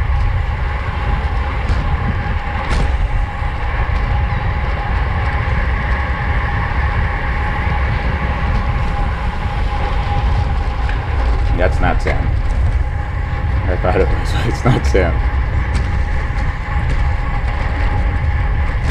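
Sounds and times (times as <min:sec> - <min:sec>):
tyre and drivetrain noise: 0:00.0 - 0:14.2
wind roaring over microphone: 0:00.0 - 0:18.9.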